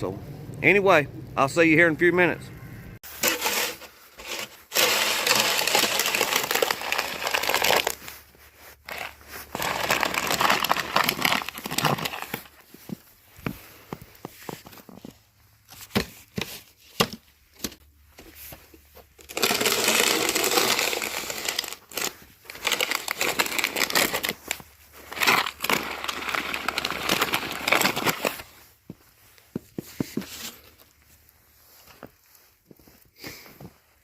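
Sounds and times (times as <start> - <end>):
wet snow scraping and crunching: 3.0 - 15.9, 18.3 - 34.0
sharp crunches and clicks: 19.1 - 28.6.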